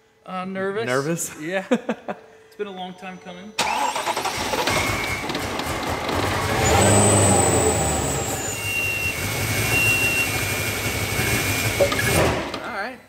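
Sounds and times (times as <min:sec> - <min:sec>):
engine revving: 0:03.6 - 0:12.4
supercharger whine: 0:04.0 - 0:12.2.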